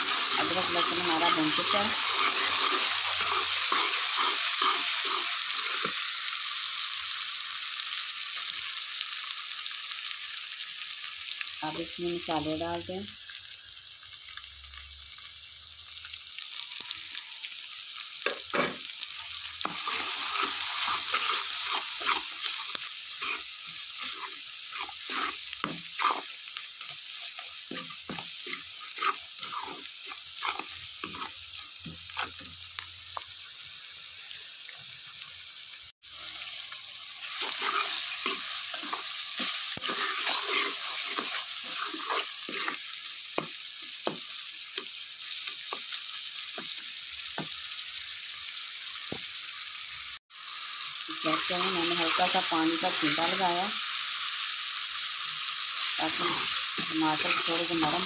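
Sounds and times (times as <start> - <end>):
steel spoon scraping a pot: 0.0 - 5.9, 19.6 - 26.4, 27.2 - 31.4, 32.1 - 32.5, 37.3 - 42.9, 56.0 - 58.0
onion sizzling in hot oil: 0.0 - 58.0.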